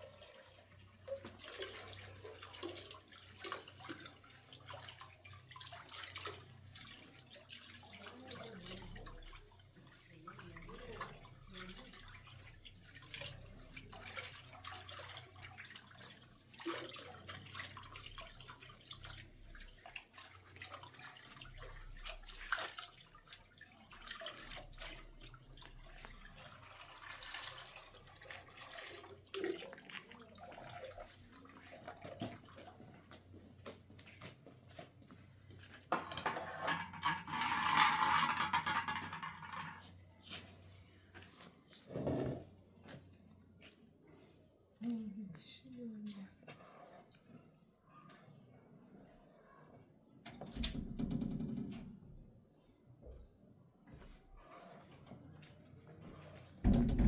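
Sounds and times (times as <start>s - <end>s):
water splashing and trickling: 0.0s - 41.8s, 42.8s - 47.9s, 53.9s - 57.0s.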